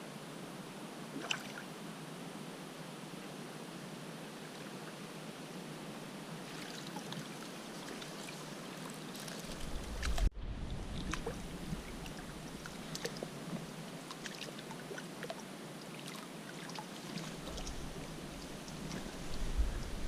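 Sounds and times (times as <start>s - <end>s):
river water running: 0.0s - 20.0s
small splashes and trickles: 1.2s - 1.7s, 6.4s - 20.0s.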